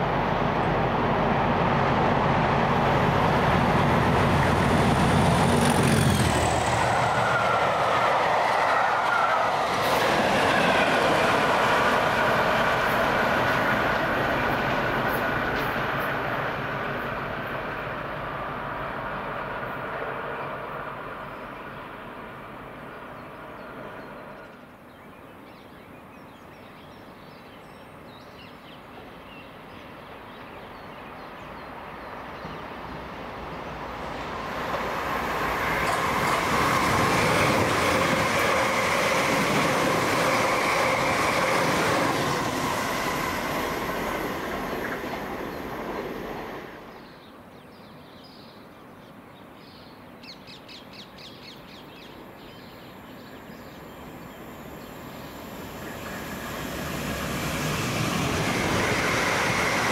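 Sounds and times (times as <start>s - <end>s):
wheel and rail noise: 0.0s - 24.8s, 31.2s - 47.2s, 52.9s - 59.9s
electric train passing: 0.0s - 24.9s, 31.3s - 47.2s, 52.1s - 59.9s.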